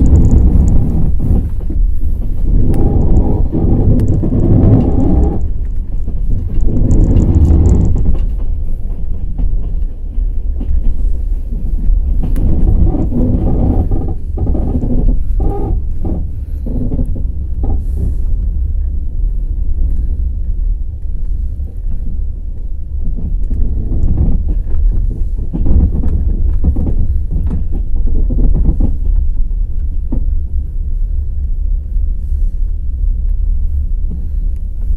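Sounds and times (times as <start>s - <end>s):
train wheels clacking over rail joints: 0.0s - 18.4s, 23.0s - 30.4s
low rumble of moving carriages: 0.0s - 34.9s.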